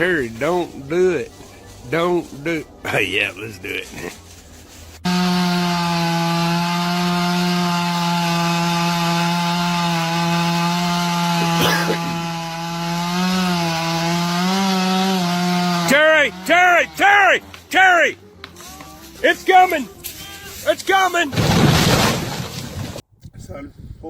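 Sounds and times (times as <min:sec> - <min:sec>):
chainsaw cutting tree: 0:05.0 - 0:23.0.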